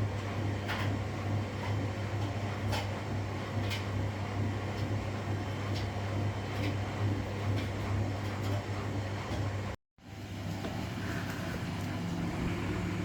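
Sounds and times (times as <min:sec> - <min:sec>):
washing machine humming: 0:00.0 - 0:13.0.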